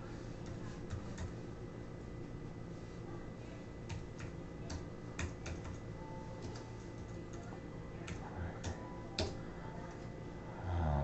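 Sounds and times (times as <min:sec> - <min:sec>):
faint steady hum: 0:00.0 - 0:11.0
computer keyboard keystrokes: 0:03.9 - 0:05.8.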